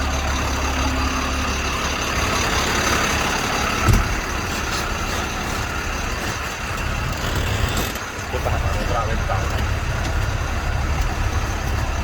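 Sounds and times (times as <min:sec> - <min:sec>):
truck engine running: 0:00.0 - 0:12.0
heavy thump: 0:03.8 - 0:04.3.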